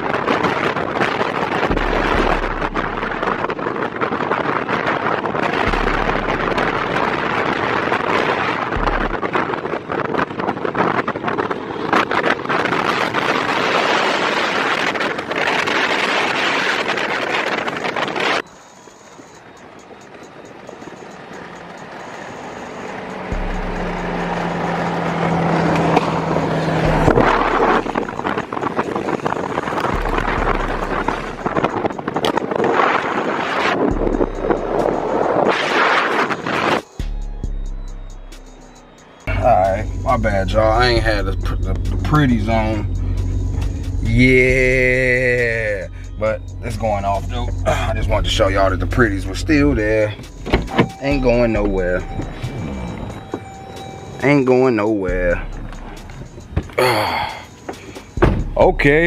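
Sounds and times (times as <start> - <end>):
vehicle and street noise: 0.0 - 59.0
wind buffeting microphone: 0.0 - 59.0
low rumble: 1.6 - 4.4, 5.5 - 9.6, 21.1 - 32.3, 33.8 - 35.5, 37.0 - 54.2, 55.1 - 56.8, 58.2 - 59.0.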